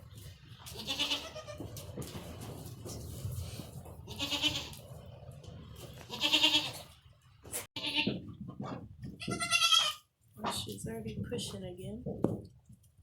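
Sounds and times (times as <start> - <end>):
goat bleating: 0.7 - 1.7, 4.1 - 4.8, 6.1 - 7.0, 7.8 - 8.2, 9.2 - 10.1.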